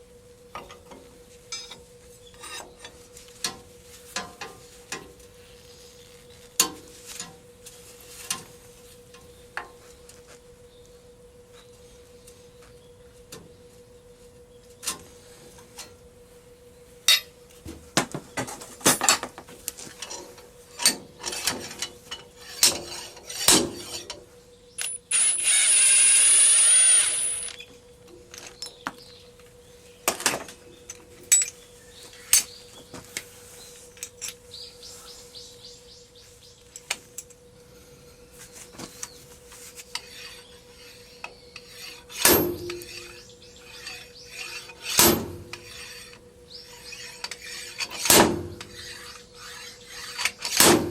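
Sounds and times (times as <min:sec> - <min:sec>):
faint steady hum: 0:00.0 - 0:50.9
metal parts clanking: 0:24.8 - 0:26.1, 0:30.2 - 0:31.6, 0:34.0 - 0:34.4, 0:42.1 - 0:43.2
power tool running: 0:24.8 - 0:27.7.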